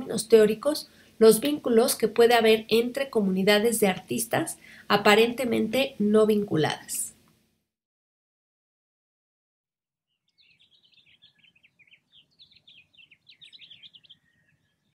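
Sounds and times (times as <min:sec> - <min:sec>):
faint low background noise: 0:00.0 - 0:07.6
bird twittering: 0:10.2 - 0:15.0.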